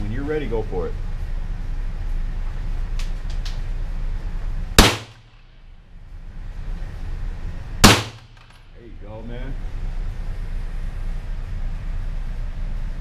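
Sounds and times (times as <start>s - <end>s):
rifle shot: 4.8s - 5.5s, 7.8s - 8.6s.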